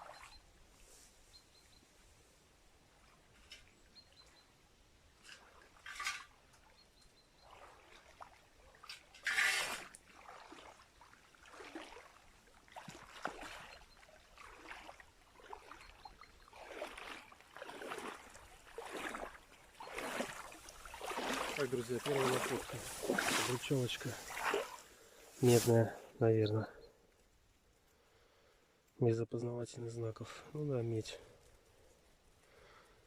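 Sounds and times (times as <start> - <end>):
water sloshing and trickling: 0.0 - 0.8, 2.7 - 26.8
digging scrapes in stream bed: 5.2 - 6.6, 8.7 - 13.8, 16.5 - 26.1.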